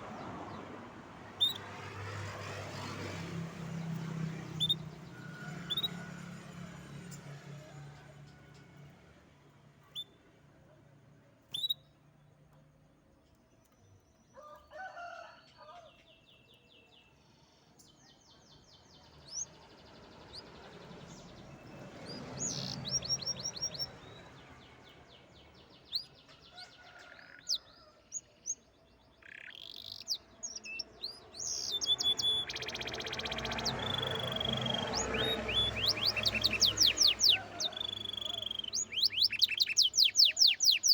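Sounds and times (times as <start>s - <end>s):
canary singing: 1.3s - 7.6s, 11.5s - 11.9s, 21.7s - 24.4s, 29.0s - 40.9s.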